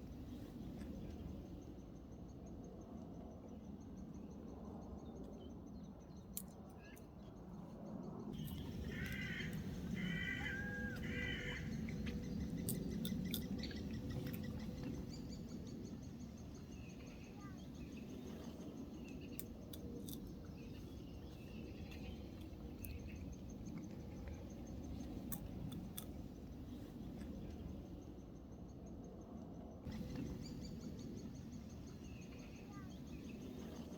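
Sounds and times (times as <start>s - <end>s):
steady low rumble: 7.4s - 33.9s
bird calling: 8.4s - 15.7s
faint bird chirps: 8.4s - 25.5s, 29.9s - 33.9s.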